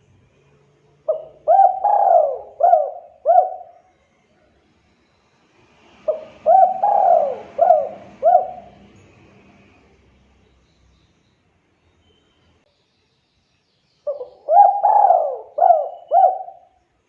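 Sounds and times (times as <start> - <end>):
dove cooing: 1.1 - 3.8, 6.0 - 9.0, 14.1 - 16.8.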